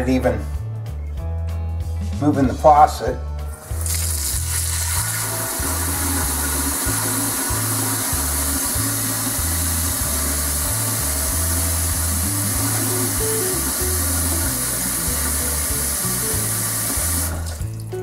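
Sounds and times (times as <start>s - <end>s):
background music with bass line: 0.0s - 18.0s
faucet running into sink: 3.6s - 18.0s.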